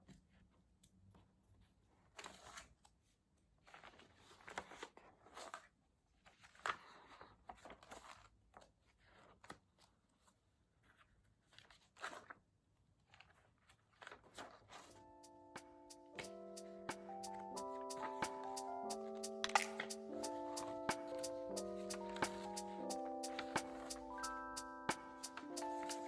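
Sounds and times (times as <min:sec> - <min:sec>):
paper rustling: 0:02.1 - 0:02.8, 0:03.6 - 0:12.4, 0:13.0 - 0:15.1, 0:17.6 - 0:24.3.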